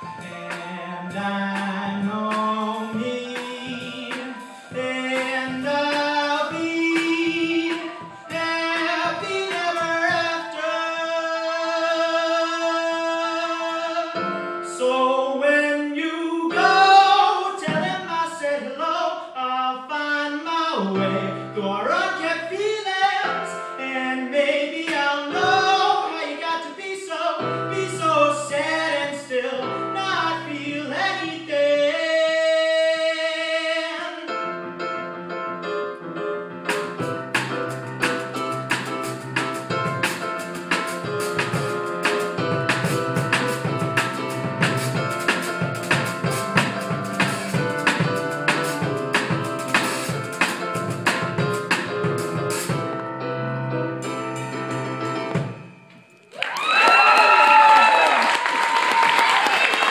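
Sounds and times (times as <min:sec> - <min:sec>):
instrumental accompaniment: 0:00.0 - 0:11.8, 0:34.3 - 0:56.3
person singing: 0:00.0 - 0:34.4.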